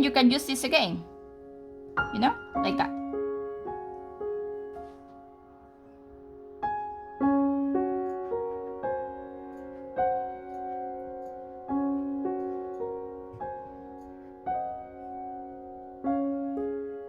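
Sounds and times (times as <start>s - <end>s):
slow solo piano piece: 0.0s - 17.0s.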